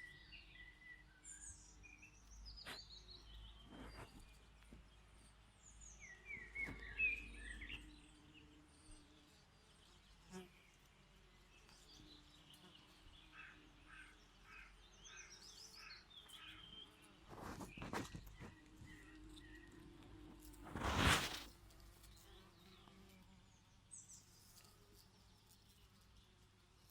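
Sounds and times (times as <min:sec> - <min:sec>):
birds chirping: 0:00.0 - 0:10.8.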